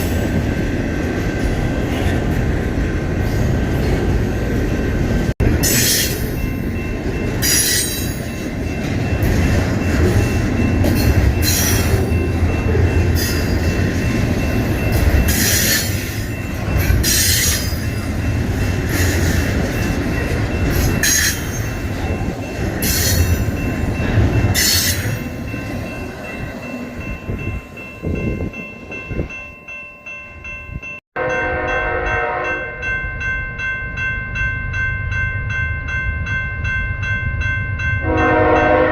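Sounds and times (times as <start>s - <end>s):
train wheels rumbling on rails: 0.0s - 29.4s
locomotive air horn: 31.2s - 32.7s, 38.0s - 38.9s.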